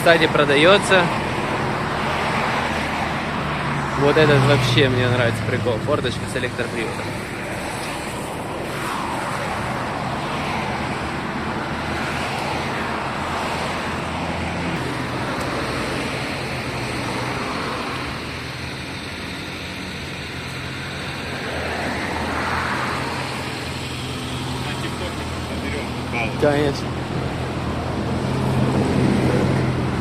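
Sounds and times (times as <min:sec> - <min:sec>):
low engine hum: 0:00.0 - 0:30.0
vehicles passing: 0:00.0 - 0:30.0.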